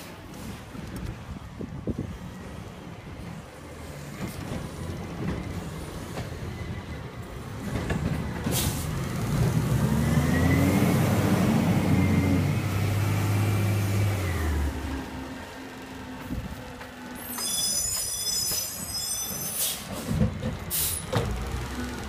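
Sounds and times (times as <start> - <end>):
garbage truck engine revving: 7.6 - 15.8.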